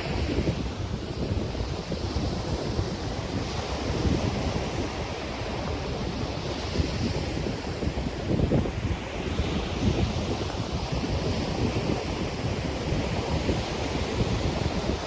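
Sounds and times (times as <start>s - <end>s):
ocean surf washing on beach: 0.0s - 15.0s
wind buffeting microphone: 0.0s - 15.0s
wind rustling palm fronds: 0.0s - 15.0s.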